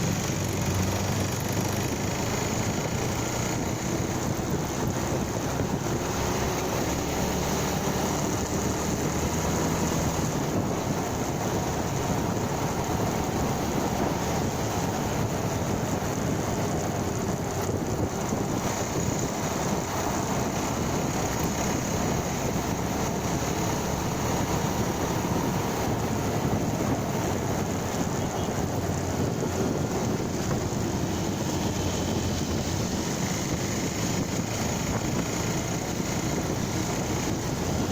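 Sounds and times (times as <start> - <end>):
motorcycle engine cruising: 0.0 - 37.9
wind noise on microphone: 0.0 - 37.9.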